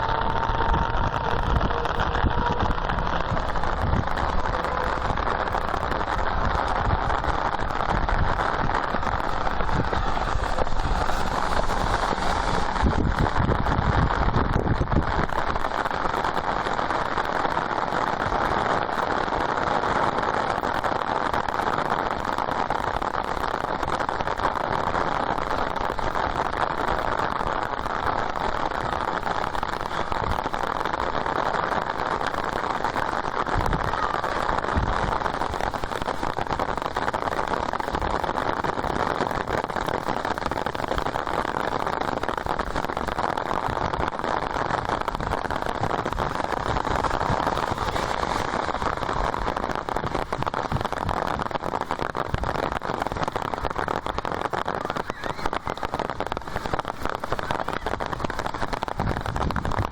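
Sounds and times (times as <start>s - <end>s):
low rumble: 0.0s - 16.1s, 45.4s - 50.4s
torrential rain hiss: 0.0s - 59.9s.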